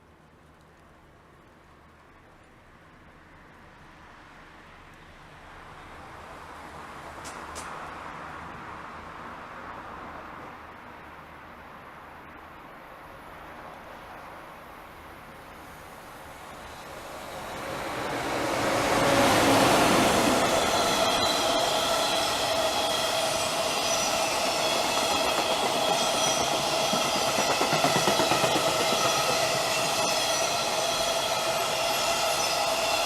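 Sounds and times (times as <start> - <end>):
rail noise: 3.8 - 33.0
electric train passing: 13.2 - 33.0
steady whining tones: 16.3 - 33.0.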